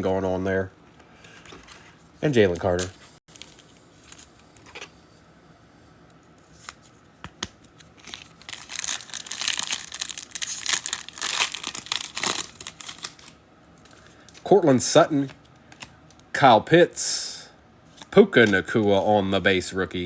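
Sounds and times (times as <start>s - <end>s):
foil wrapper crinkling and tearing: 8.0s - 13.4s.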